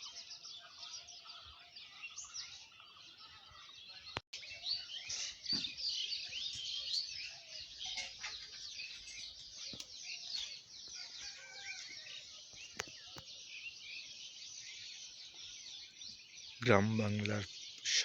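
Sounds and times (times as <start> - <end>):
birds chirping and twittering: 0.0 - 18.0
low bird call: 17.8 - 18.0.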